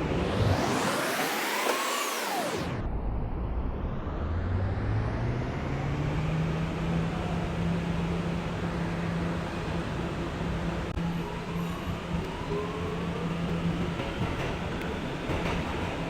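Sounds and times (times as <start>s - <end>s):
subway wheels rumbling on track: 5.3s - 16.0s.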